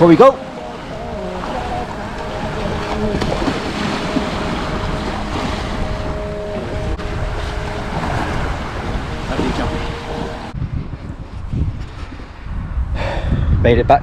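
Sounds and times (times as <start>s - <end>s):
surf washing onto beach: 0.0s - 10.5s
wind buffeting microphone: 0.0s - 14.0s.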